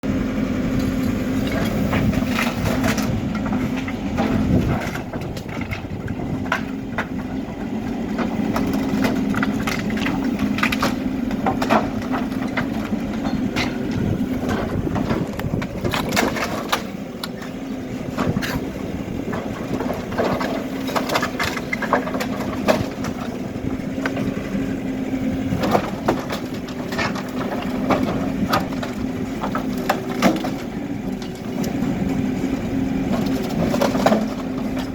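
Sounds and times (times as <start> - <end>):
backhoe diesel engine running: 0.0 - 34.9
debris cracking and crashing: 8.2 - 17.5, 19.3 - 23.4, 33.1 - 34.9.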